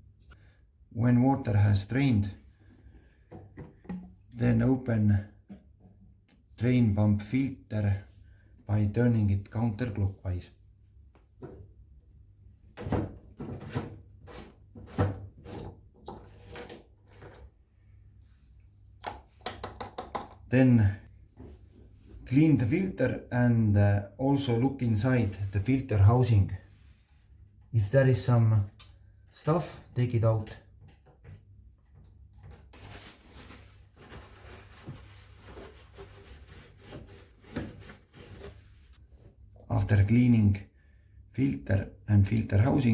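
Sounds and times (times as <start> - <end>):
plastic filter rubbing and scraping: 32.5 - 39.0.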